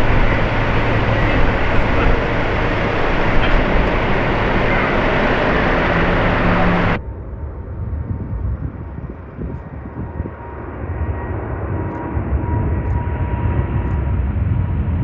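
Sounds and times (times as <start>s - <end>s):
jet engines running: 0.0s - 7.0s.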